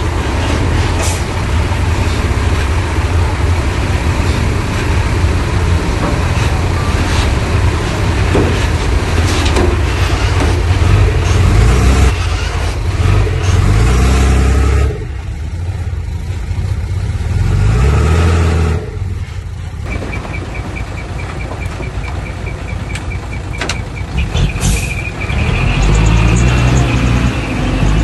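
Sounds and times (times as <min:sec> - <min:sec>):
diesel engine revving: 0:00.0 - 0:28.0
reversing alarm beeping: 0:19.9 - 0:26.9.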